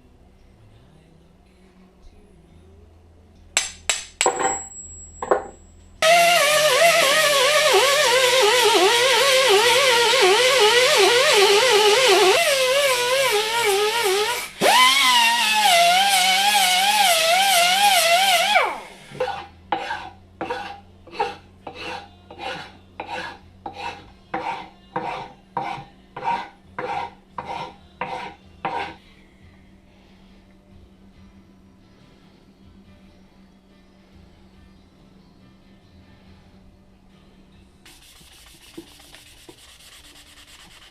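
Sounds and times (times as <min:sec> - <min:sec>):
power tool running: 0:06.0 - 0:19.2
hand file strokes: 0:06.0 - 0:29.0, 0:37.9 - 0:40.9.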